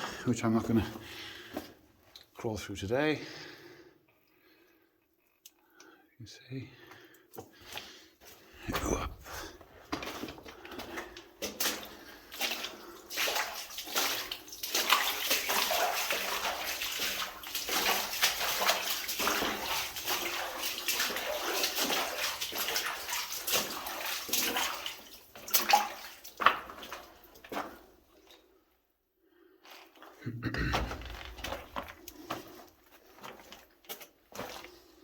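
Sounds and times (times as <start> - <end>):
footsteps wading through water: 6.9 - 28.5, 29.6 - 35.0.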